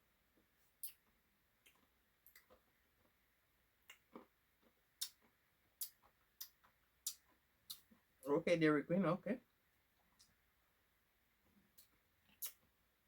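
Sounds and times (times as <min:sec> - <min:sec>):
eating clicks and smacks: 0:00.8 - 0:02.7, 0:03.8 - 0:08.0, 0:11.7 - 0:12.7.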